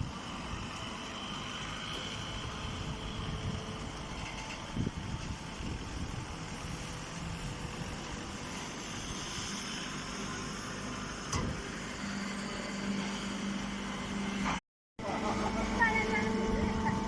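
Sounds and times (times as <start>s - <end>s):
hay baler running: 15.0s - 17.0s.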